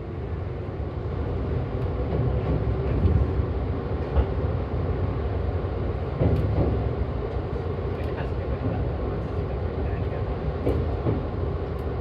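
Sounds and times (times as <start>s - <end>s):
train rumbling slowly: 0.0s - 12.0s
train clunks: 1.8s - 3.4s, 4.0s - 4.4s, 6.0s - 12.0s.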